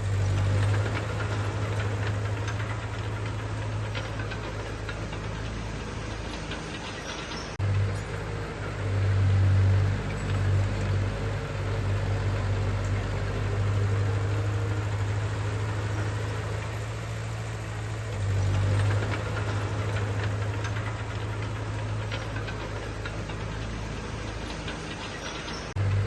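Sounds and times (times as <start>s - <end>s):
diesel engine running: 0.0s - 26.0s
light clicks and clanks: 0.0s - 26.0s.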